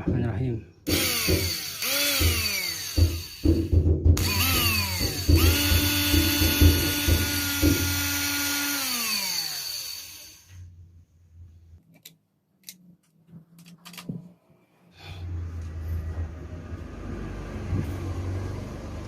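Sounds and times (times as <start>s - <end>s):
knocks: 0.9s - 8.0s
cordless drill motor whining: 0.9s - 10.6s.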